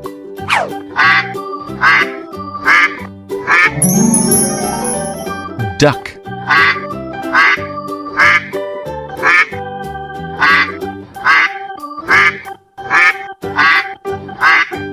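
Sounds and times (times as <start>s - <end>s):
cheerful background music: 0.0s - 12.4s
duck quacking: 9.2s - 9.6s, 10.4s - 14.8s.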